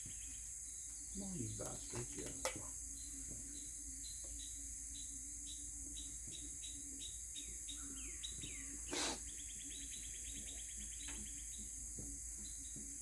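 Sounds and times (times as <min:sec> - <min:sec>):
birds chirping: 0:00.0 - 0:13.0
rapid bird trill: 0:02.7 - 0:13.0
short burst of hiss-like noise: 0:08.9 - 0:09.2.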